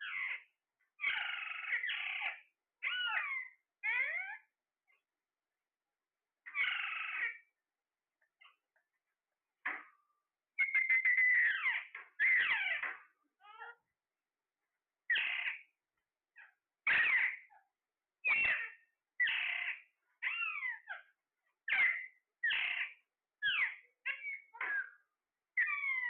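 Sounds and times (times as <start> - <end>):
parrot squawking: 0.0 - 4.5, 6.5 - 7.5, 10.6 - 13.8, 15.1 - 15.7, 16.8 - 17.6, 18.2 - 21.0, 21.7 - 25.0, 25.6 - 26.0.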